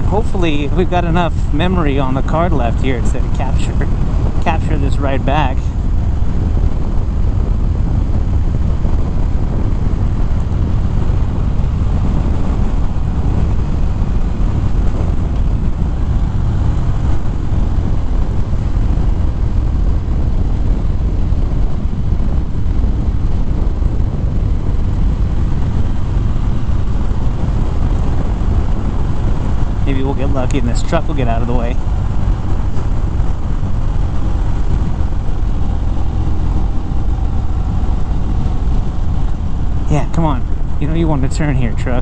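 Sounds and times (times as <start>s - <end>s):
motorcycle engine at speed: 0.0s - 42.0s
wind noise on microphone: 0.0s - 42.0s.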